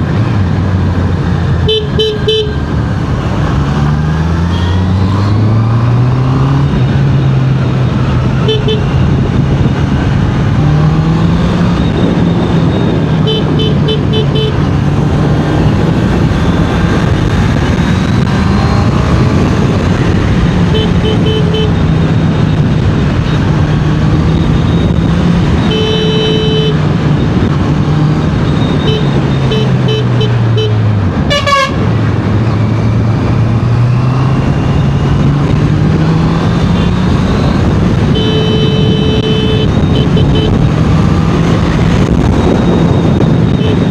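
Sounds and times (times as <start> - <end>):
motorcycle engine revving: 0.0 - 43.9
short horn beeps: 25.6 - 26.8, 38.1 - 40.6.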